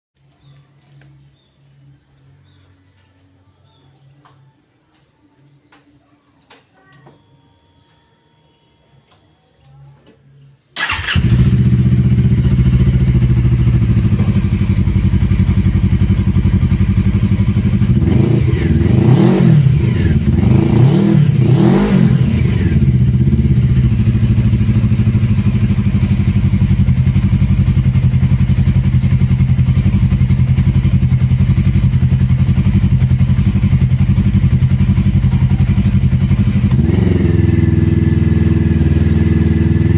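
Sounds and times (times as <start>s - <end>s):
motorcycle engine idling and revving: 9.1s - 39.9s.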